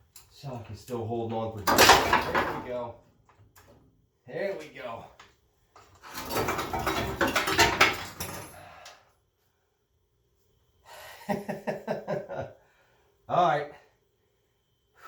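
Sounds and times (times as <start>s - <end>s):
metal clanking and scraping: 1.6s - 2.8s, 5.8s - 8.6s.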